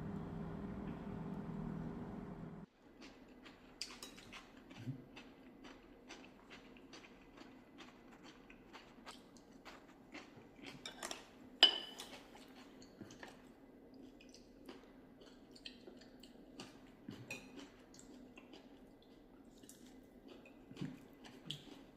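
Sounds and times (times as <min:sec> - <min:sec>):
steady low hum: 0:00.0 - 0:02.7
tableware clicking and tapping: 0:10.9 - 0:12.1.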